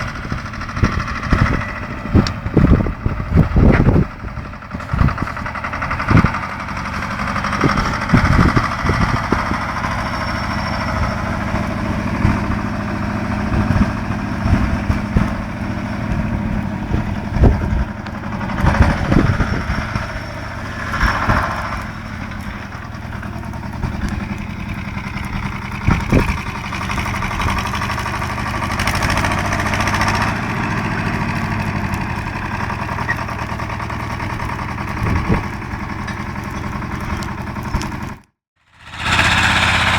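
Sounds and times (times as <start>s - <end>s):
tractor diesel engine running: 0.0s - 39.9s
log grab knocks and clatter: 20.8s - 38.3s.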